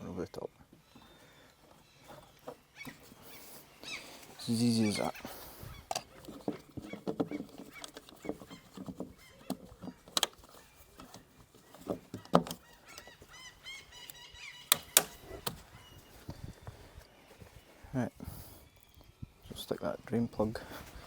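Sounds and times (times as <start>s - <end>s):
small bird chirping: 0.1s - 17.8s
metallic knocks and clicks: 14.7s - 15.6s.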